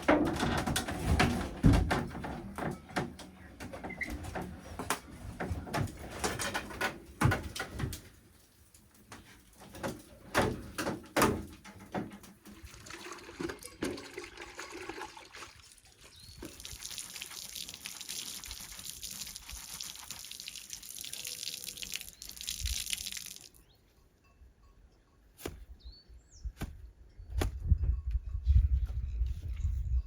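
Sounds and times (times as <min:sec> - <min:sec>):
liquid pouring: 0:12.5 - 0:23.6
bird chirp: 0:21.0 - 0:22.7, 0:23.5 - 0:27.4.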